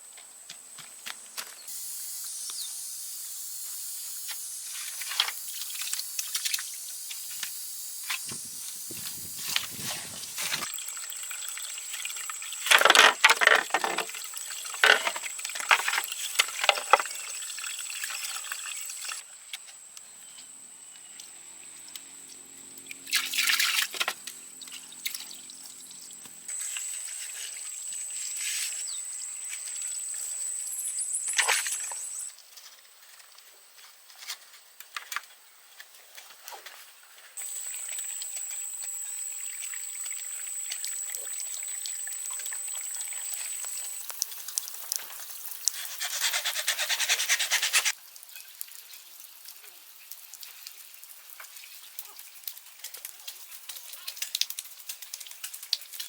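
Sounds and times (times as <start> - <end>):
steady high hiss: 1.1 - 10.8, 26.4 - 32.3, 37.4 - 47.9
wet splashing and dripping: 48.0 - 56.0.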